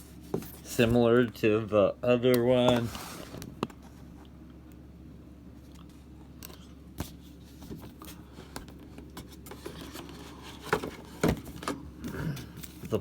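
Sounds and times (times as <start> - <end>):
paper and cardboard rustling: 2.5 - 4.0, 7.0 - 13.0.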